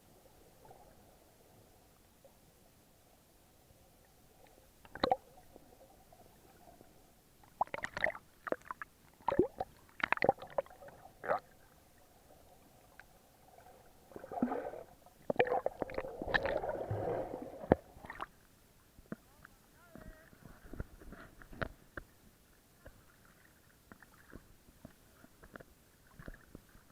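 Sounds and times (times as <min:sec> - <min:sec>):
water gurgling and bubbling: 0:05.0 - 0:05.3, 0:07.6 - 0:11.6, 0:13.5 - 0:18.2
underwater knocks and splashes: 0:07.5 - 0:11.4, 0:13.0 - 0:18.3.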